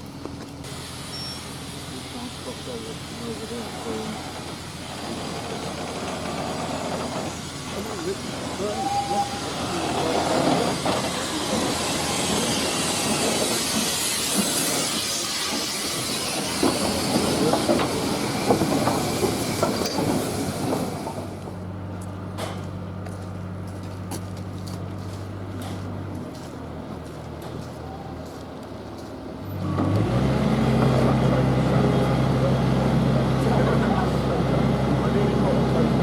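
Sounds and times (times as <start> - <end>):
train wheels clattering past: 3.8 - 21.6.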